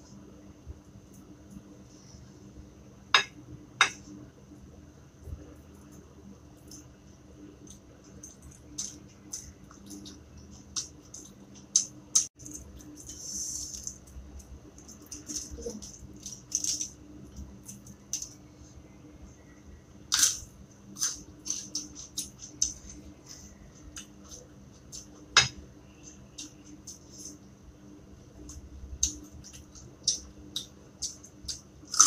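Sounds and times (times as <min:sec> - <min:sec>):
crunchy chewing: 0:28.4 - 0:32.0.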